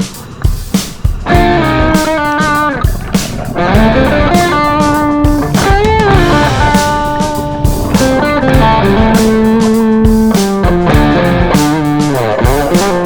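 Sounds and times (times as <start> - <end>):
rock music with electric guitar: 0.0 - 13.0.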